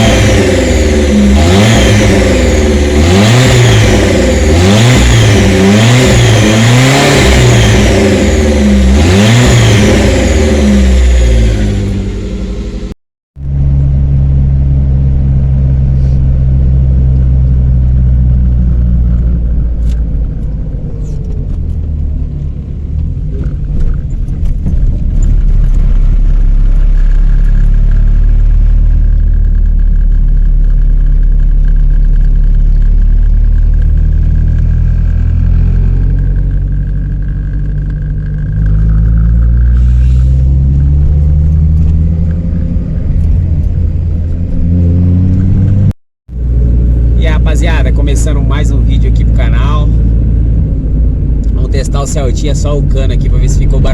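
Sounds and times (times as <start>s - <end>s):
loud rumbly car engine: 0.0s - 53.9s.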